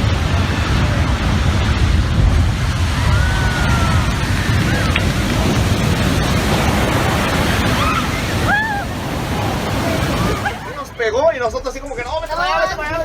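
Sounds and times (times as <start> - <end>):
swollen river rushing: 0.0 - 13.0
wind buffeting microphone: 0.0 - 13.0.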